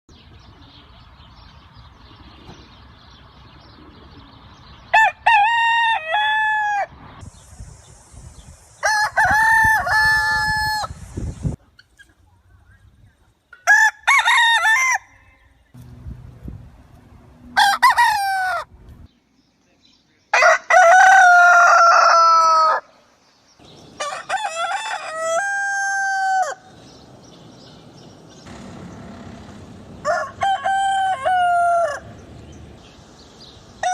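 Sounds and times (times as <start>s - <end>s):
roosters crowing: 4.9s - 7.2s, 8.8s - 11.0s, 13.6s - 15.6s, 17.4s - 19.1s, 20.3s - 23.0s, 23.6s - 27.8s, 28.4s - 33.9s.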